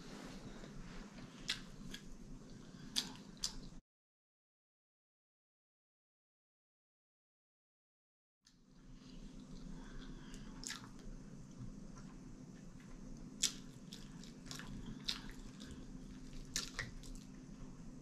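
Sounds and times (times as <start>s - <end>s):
steady low hum: 0.0s - 3.8s, 8.5s - 18.0s
close-miked chewing: 0.6s - 3.8s, 9.1s - 17.5s.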